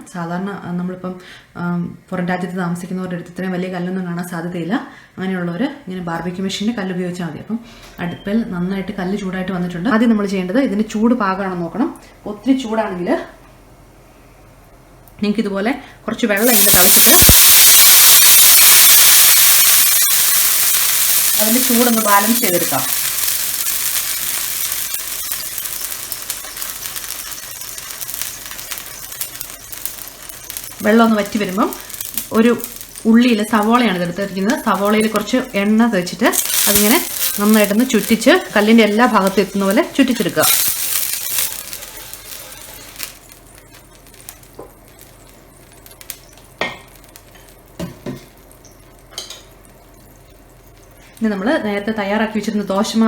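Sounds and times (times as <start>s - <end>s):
water sizzling on hot metal plate: 16.4s - 51.9s.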